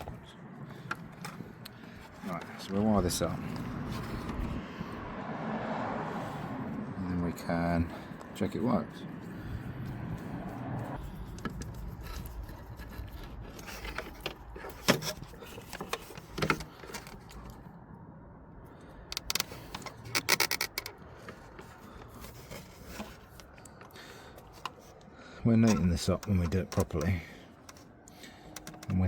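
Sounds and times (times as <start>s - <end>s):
tools and cables clicking and tapping: 11.2s - 17.6s, 19.1s - 29.0s.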